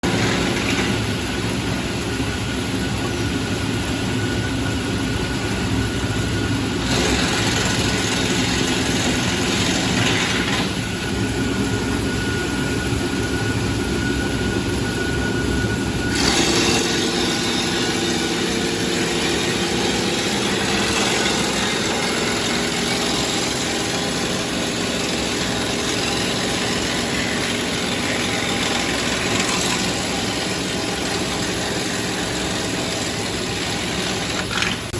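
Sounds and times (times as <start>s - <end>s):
grinder shredding wood: 0.0s - 1.8s, 6.8s - 11.0s, 16.1s - 34.9s.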